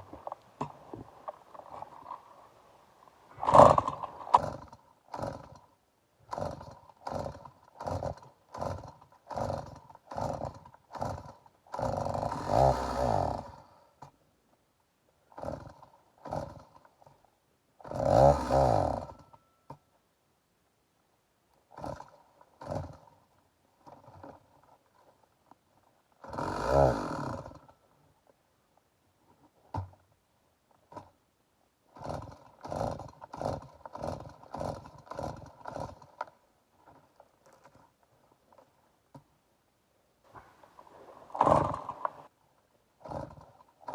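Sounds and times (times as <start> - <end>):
chainsaw being pull-started: 0.0 - 2.4, 3.3 - 5.7, 6.3 - 14.1, 15.3 - 17.2, 17.8 - 19.4, 21.7 - 23.2, 23.8 - 25.1, 26.2 - 27.8, 31.9 - 37.9, 40.3 - 42.3, 43.0 - 43.9
chainsaw engine sputtering: 0.0 - 2.4, 3.3 - 5.7, 6.3 - 13.8, 15.3 - 17.2, 17.8 - 19.4, 21.7 - 23.2, 26.2 - 27.8, 31.9 - 36.3, 40.3 - 42.3, 43.0 - 43.9.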